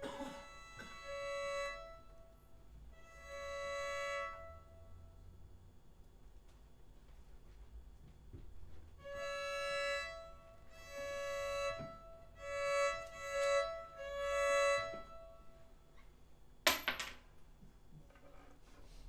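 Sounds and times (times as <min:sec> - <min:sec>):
slow held instrumental notes: 0:00.0 - 0:05.4, 0:08.4 - 0:16.0.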